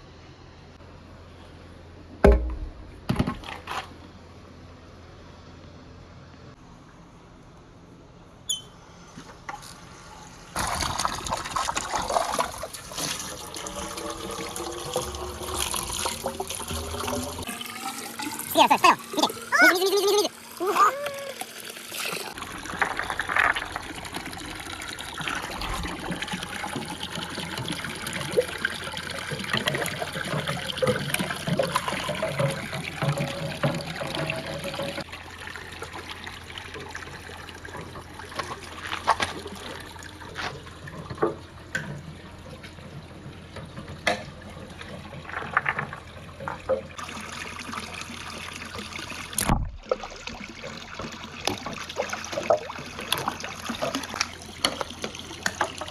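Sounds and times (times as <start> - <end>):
water trickling: 10.6 - 55.9.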